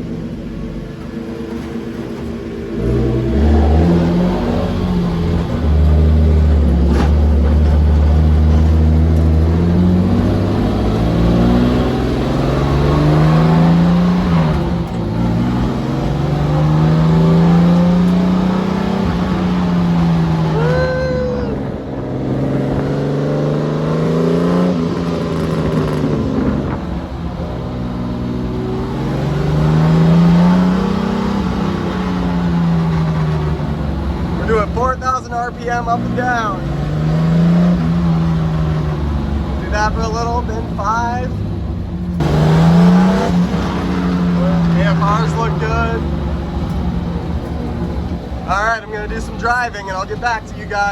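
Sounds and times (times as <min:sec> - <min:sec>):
car engine revving: 0:00.0 - 0:50.9.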